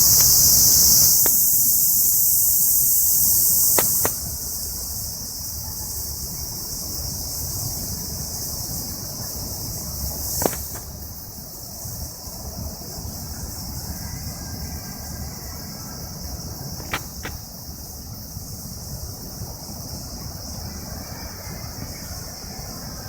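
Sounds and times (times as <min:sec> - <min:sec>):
insect chorus buzzing: 0:00.0 - 0:23.0
sharp clicks: 0:03.7 - 0:04.3.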